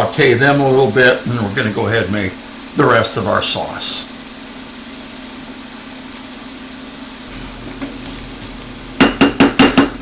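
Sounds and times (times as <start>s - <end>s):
mushrooms sizzling in a pan: 0.0s - 10.0s
steady low hum: 7.2s - 10.0s.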